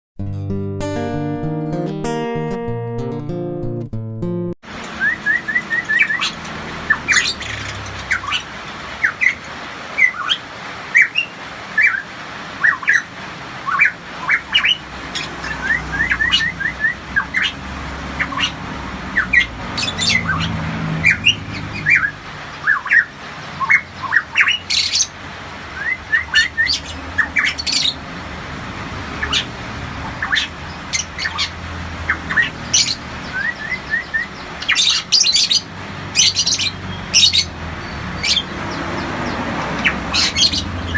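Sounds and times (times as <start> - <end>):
bird whistling and squawking: 5.0 - 8.4, 10.0 - 10.4, 13.7 - 17.6, 19.2 - 25.1, 30.2 - 31.5, 32.1 - 37.5, 39.8 - 40.9.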